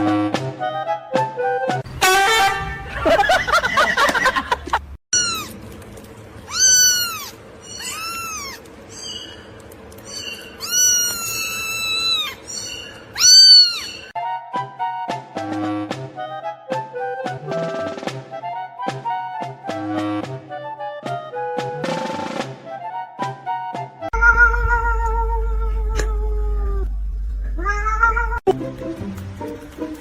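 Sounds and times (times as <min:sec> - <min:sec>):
cat meowing: 0:05.2 - 0:05.6, 0:06.5 - 0:09.2, 0:10.1 - 0:14.1, 0:24.2 - 0:26.9, 0:27.6 - 0:28.5.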